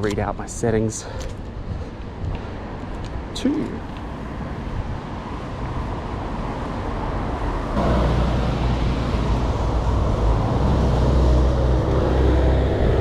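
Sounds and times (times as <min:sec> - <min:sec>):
road noise on wet roads: 0:00.0 - 0:13.0
low engine rumble: 0:07.7 - 0:13.0.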